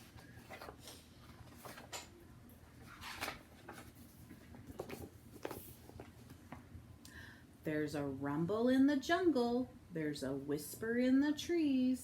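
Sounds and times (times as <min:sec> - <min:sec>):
picture book rustling: 0:02.8 - 0:06.4.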